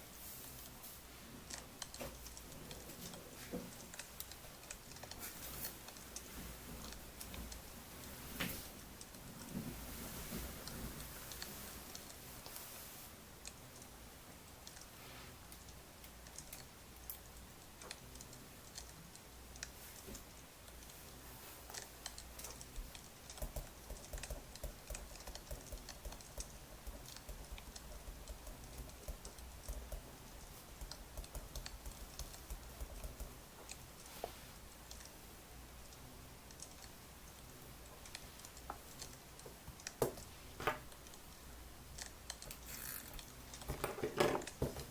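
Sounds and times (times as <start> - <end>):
low steady hum: 0.0 - 44.9
keyboard typing: 21.7 - 34.1, 41.9 - 44.9.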